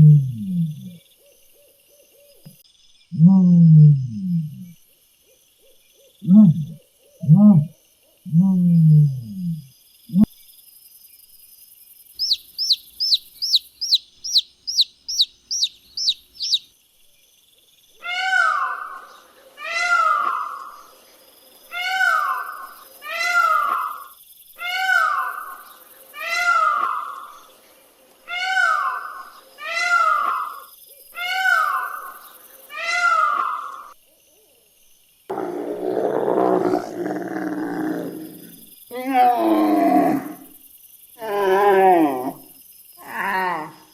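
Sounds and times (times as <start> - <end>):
high animal chirps: 12.2 - 16.7
animal call falling in pitch: 18.0 - 20.8, 26.2 - 27.3, 32.8 - 33.9
rough roar-like animal call: 35.3 - 40.5, 41.2 - 43.8.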